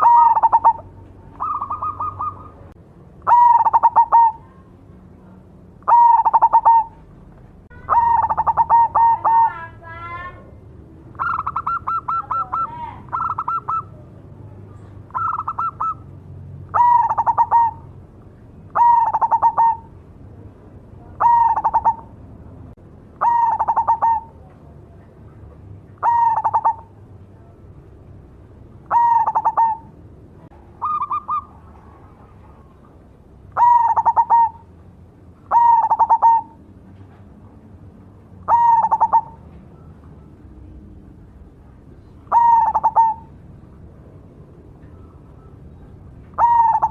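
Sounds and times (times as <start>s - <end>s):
dove cooing: 0.0s - 4.6s, 5.8s - 7.1s, 7.7s - 9.8s, 11.1s - 14.1s, 15.1s - 16.1s, 16.7s - 18.0s, 18.6s - 20.0s, 21.1s - 22.2s, 23.2s - 24.5s, 26.0s - 27.0s, 28.8s - 30.0s, 30.6s - 32.9s, 33.5s - 34.7s, 35.5s - 36.7s, 38.4s - 40.3s, 42.0s - 43.4s, 44.8s - 46.9s.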